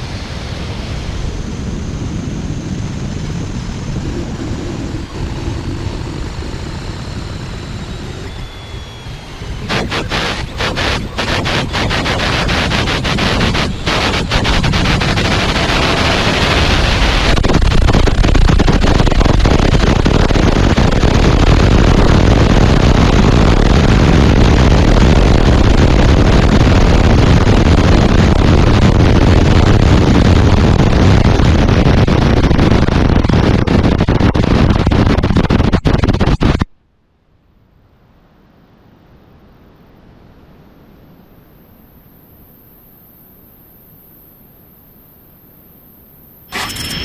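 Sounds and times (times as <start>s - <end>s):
rocket re-entry rumbling: 0.0s - 36.7s
crackling: 3.6s - 36.7s.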